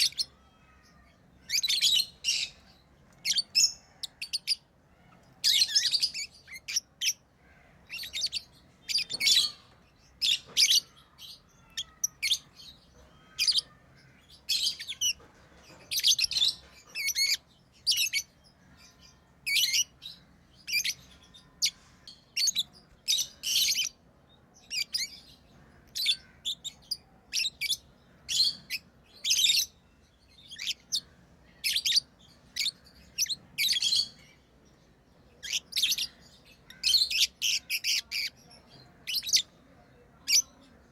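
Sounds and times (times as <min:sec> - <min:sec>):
lovebirds chirping: 0:00.0 - 0:40.9.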